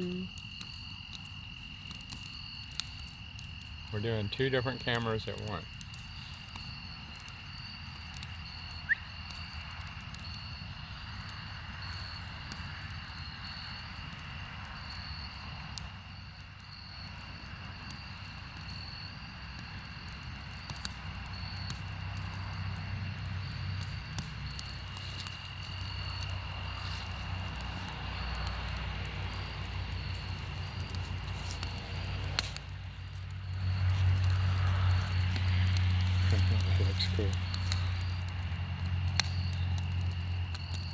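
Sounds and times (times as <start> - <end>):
campfire crackling and popping: 0.0 - 40.9
insects trilling: 0.0 - 40.9
low rumble: 25.8 - 40.4.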